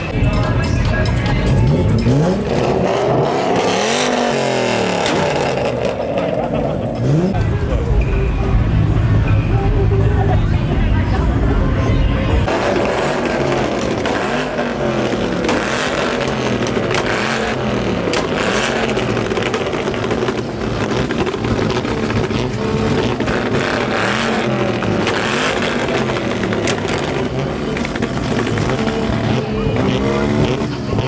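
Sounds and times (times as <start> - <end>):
car engines revving: 0.0 - 31.0.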